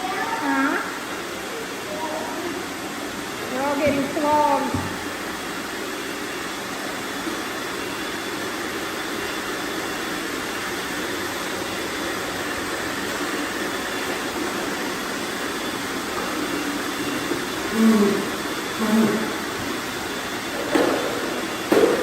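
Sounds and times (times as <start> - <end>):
robot vacuums whirring: 12.6 - 22.0.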